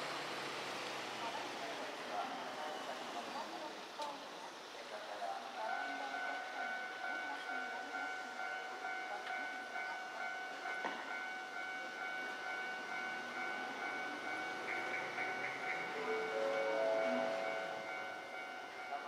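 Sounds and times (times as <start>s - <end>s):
electric train whine and rumble: 4.3s - 19.0s.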